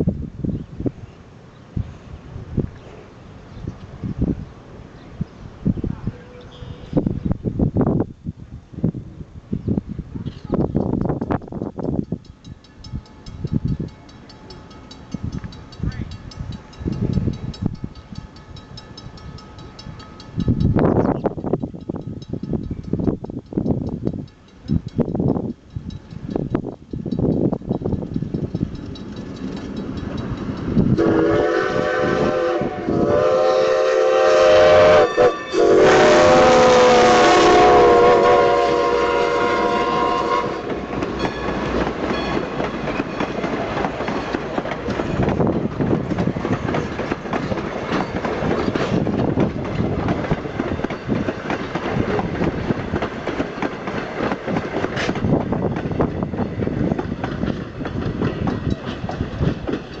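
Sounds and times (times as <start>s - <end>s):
train rumbling past: 0.0s - 60.0s
wheels clacking on rail joints: 10.2s - 31.0s, 40.5s - 60.0s
steam locomotive whistle: 30.9s - 41.5s.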